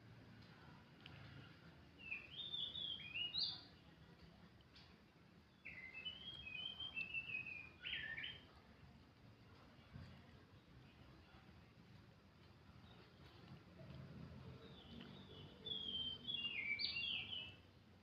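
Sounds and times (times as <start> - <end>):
bird singing whistled notes: 2.0 - 3.7, 5.5 - 8.6, 14.6 - 17.7.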